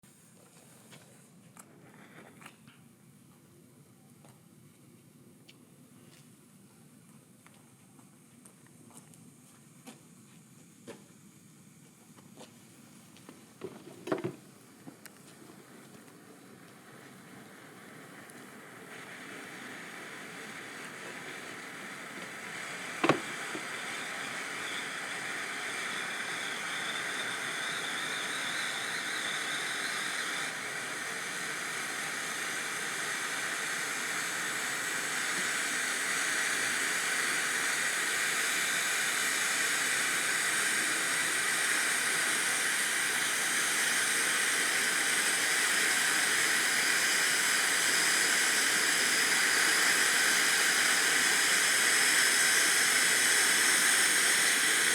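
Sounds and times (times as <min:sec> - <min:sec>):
fountain firework hissing: 0:12.7 - 0:54.9.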